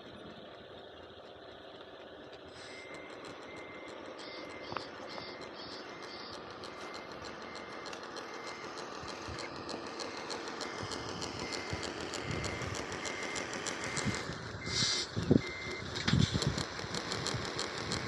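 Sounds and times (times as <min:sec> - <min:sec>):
whir of motors and gears: 0:00.0 - 0:18.0
reversing beeper: 0:02.5 - 0:16.0
short hiss: 0:14.7 - 0:15.2.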